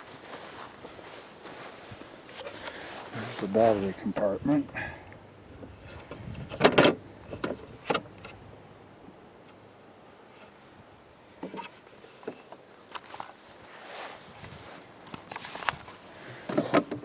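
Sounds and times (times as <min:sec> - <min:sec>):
clicks and knocks of handling: 0:05.9 - 0:08.4, 0:15.1 - 0:17.0.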